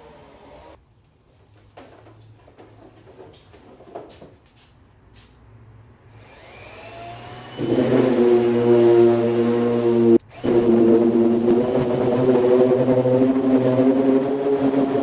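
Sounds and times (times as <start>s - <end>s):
electric motor whining: 6.2s - 15.0s.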